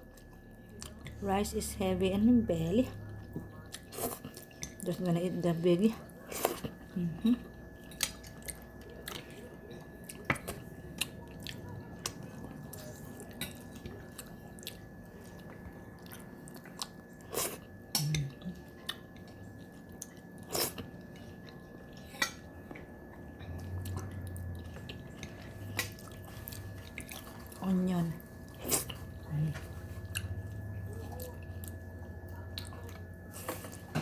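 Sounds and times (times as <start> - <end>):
person chewing: 7.8 - 27.6, 28.2 - 34.0.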